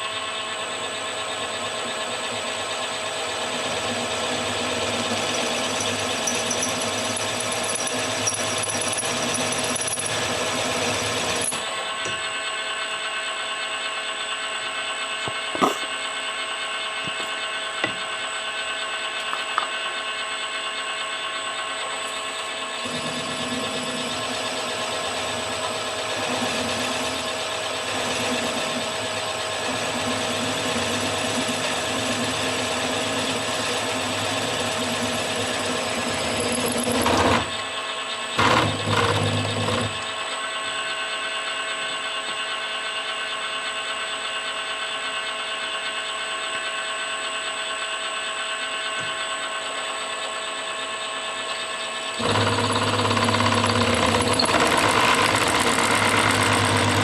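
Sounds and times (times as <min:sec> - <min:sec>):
milling machine cutting metal: 0:00.6 - 0:16.0, 0:16.8 - 0:40.3, 0:51.4 - 0:57.0.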